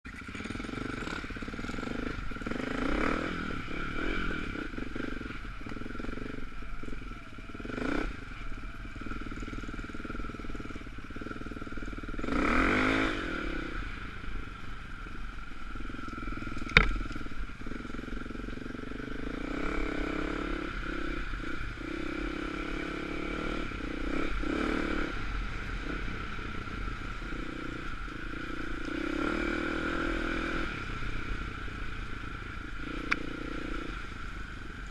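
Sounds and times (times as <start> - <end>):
motorcycle engine revving: 0.1 - 34.9
bike rattling: 14.4 - 19.7.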